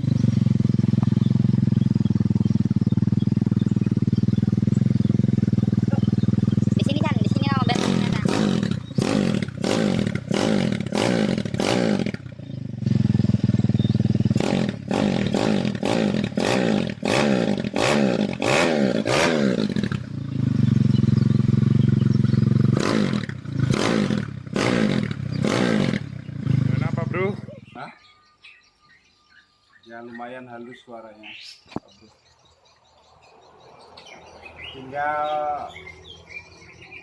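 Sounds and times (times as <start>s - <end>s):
single-cylinder engine revving: 0.0s - 27.8s.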